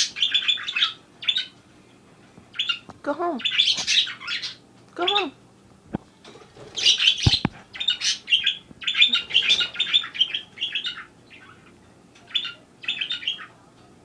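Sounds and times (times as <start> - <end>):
budgerigar chirping: 0.0 - 1.6, 2.5 - 5.4, 6.8 - 13.6.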